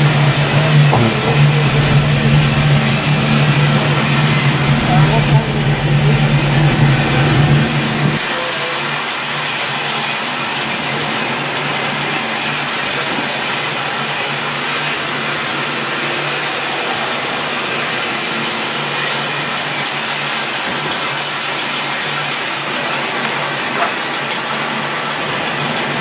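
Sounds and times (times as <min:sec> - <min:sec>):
low hum: 0:00.0 - 0:08.2
steam hissing: 0:00.0 - 0:26.0.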